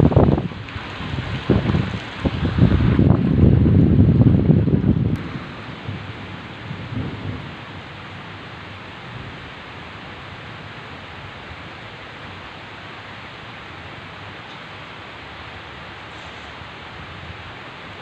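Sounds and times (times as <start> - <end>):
low thunder rumble: 0.0 - 11.7
heavy rain falling: 0.0 - 18.0.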